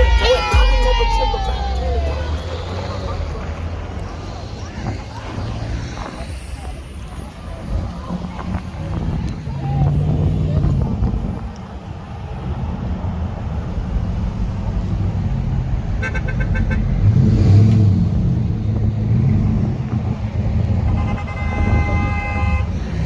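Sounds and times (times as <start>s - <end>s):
vehicle engines rumbling: 0.0s - 23.0s
long horn blast: 20.8s - 22.7s.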